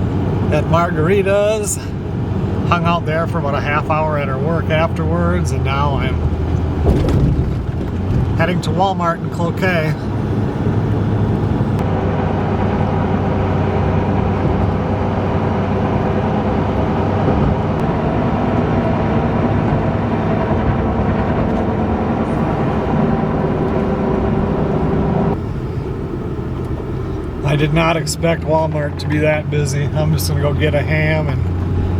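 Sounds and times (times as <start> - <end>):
road noise: 0.0 - 31.9
vehicle engine hum: 0.0 - 31.9.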